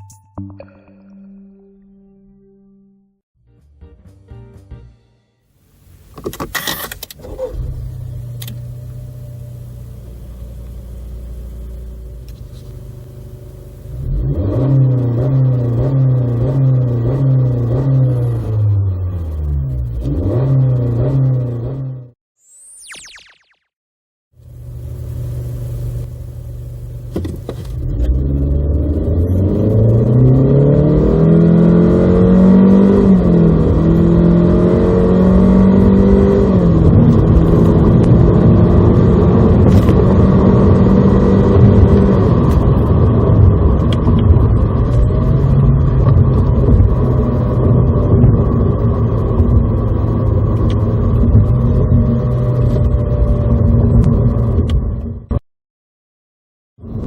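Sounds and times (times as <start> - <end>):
car engine accelerating: 7.1 - 22.2, 27.6 - 55.0
road noise: 27.0 - 54.9.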